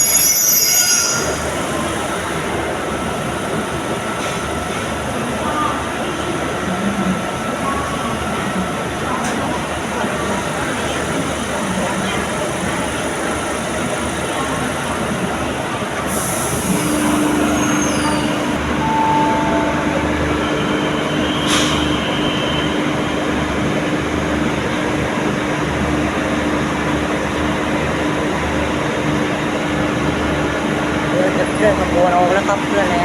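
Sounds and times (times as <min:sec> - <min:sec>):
diesel locomotive rumble: 0:01.3 - 0:33.0
low steady tone: 0:18.6 - 0:21.4.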